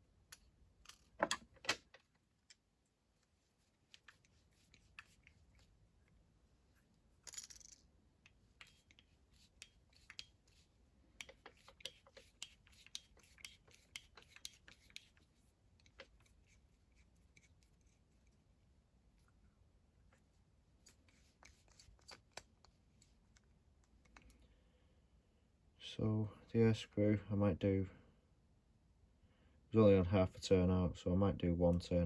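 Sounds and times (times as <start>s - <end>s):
light clicks and taps: 11.2s - 15.2s, 20.8s - 24.4s.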